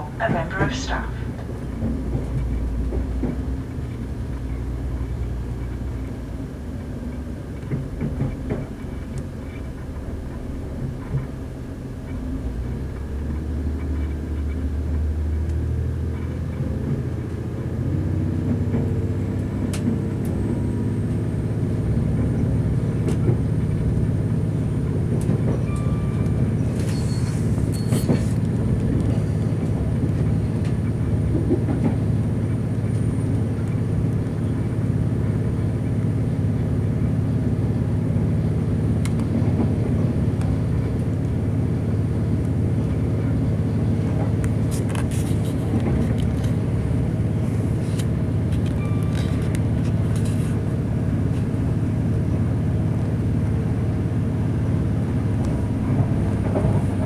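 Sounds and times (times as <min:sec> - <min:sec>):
diesel engine droning: 0:00.0 - 0:03.3
train wheels on rails: 0:16.2 - 0:57.0.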